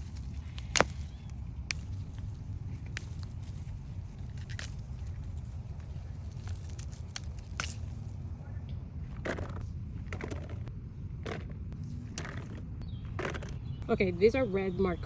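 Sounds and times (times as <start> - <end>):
crackles and snaps of picking: 0.0 - 8.3
plants rustling: 0.0 - 8.6
steady low rumble: 0.0 - 15.0.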